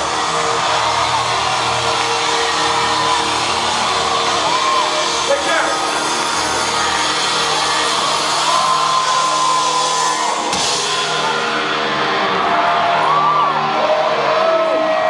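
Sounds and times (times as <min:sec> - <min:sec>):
audience whooping and cheering: 0:00.0 - 0:15.0.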